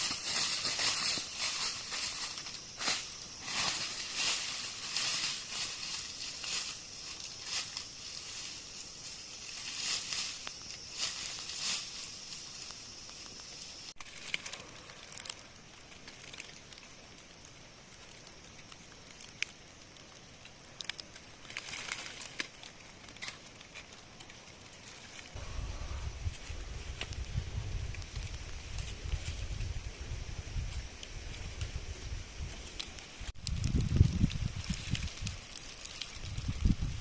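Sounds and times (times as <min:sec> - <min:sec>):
rustling in dry leaves: 0:00.0 - 0:37.0
twigs snapping: 0:09.0 - 0:17.4, 0:20.4 - 0:25.4.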